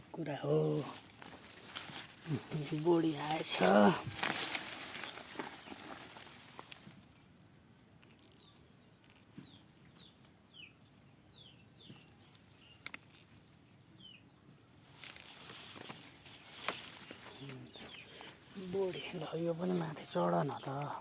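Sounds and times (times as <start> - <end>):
small bird chirping: 5.4 - 21.0.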